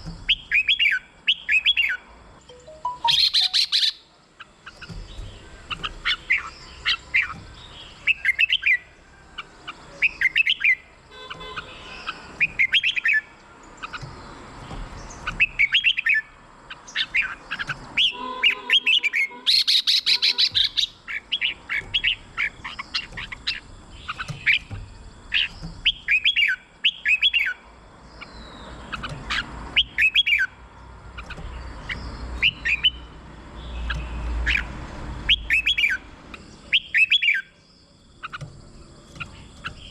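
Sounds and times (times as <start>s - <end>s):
bird singing whistled phrases: 2.6s - 4.0s, 18.0s - 22.1s, 36.7s - 37.5s.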